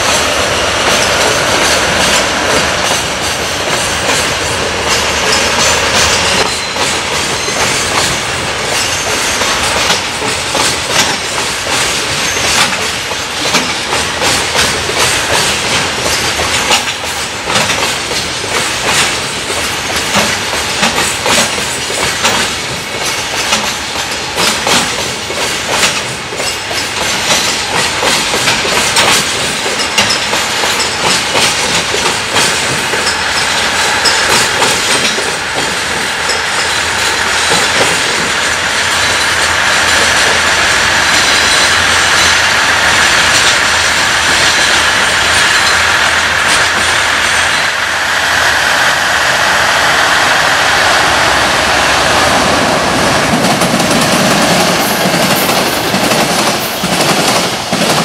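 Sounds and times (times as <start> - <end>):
train wheels clacking over joints: 0.0 - 47.7, 52.9 - 58.0.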